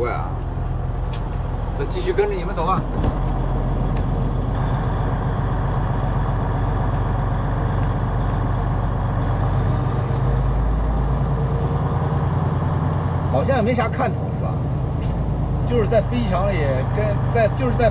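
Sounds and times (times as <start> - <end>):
truck diesel engine droning: 0.0 - 17.9.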